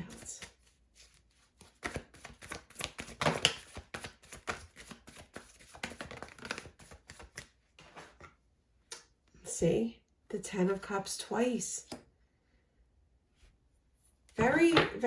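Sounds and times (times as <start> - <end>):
cards being shuffled: 0.1 - 8.2.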